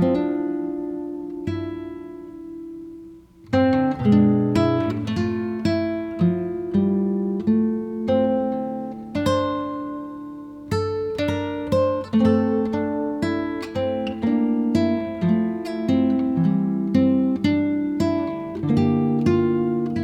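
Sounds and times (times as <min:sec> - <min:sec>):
acoustic guitar strumming and plucking: 0:00.0 - 0:20.0.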